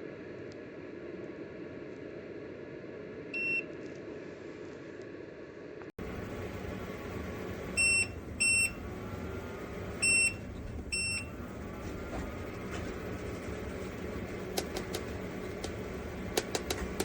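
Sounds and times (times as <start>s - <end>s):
heater fan hiss: 4.1s - 17.0s.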